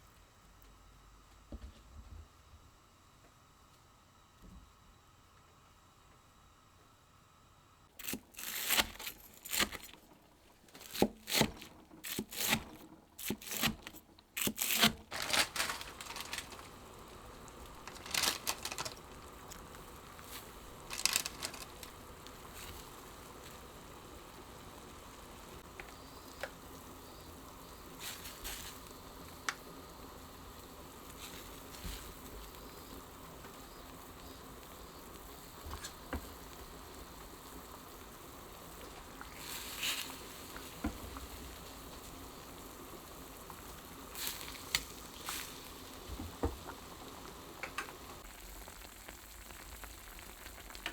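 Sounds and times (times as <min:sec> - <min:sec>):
kitchen handling noises: 0:13.2 - 0:16.9, 0:17.6 - 0:22.0.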